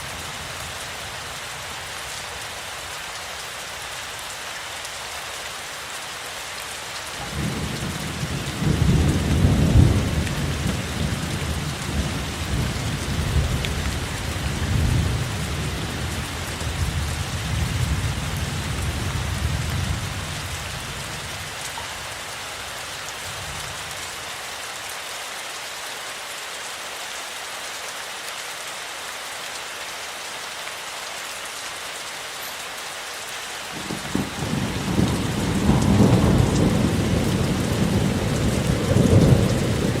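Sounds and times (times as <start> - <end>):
steady rain: 0.0 - 40.0
thunder rolling: 33.8 - 40.0.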